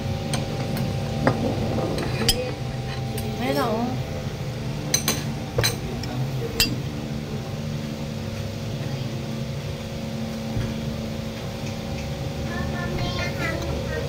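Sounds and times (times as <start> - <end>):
low room hum: 0.0 - 14.0
tableware clink: 4.9 - 5.9.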